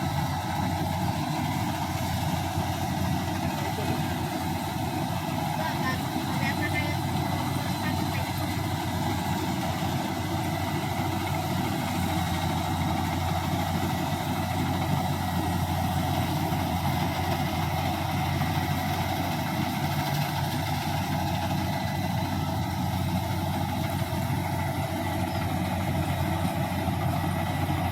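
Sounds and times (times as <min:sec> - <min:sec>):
combine harvester engine droning: 0:00.0 - 0:27.9.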